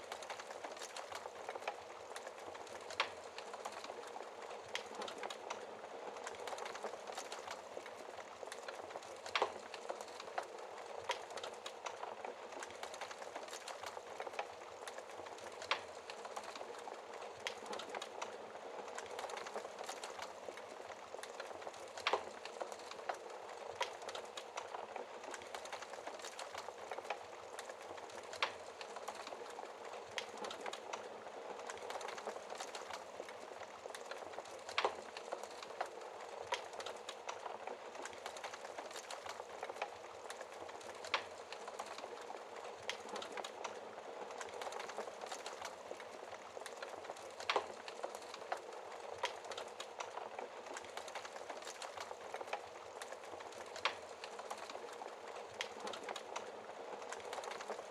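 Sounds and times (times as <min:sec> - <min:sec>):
wood fire crackling and popping: 0:00.0 - 0:57.9.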